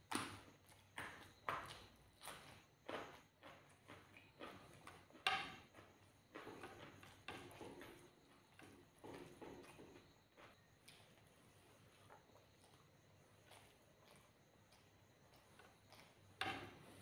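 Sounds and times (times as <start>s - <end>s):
fingers mixing rice on plate: 0.7s - 17.0s
person chewing with mouth clicks: 11.9s - 16.2s.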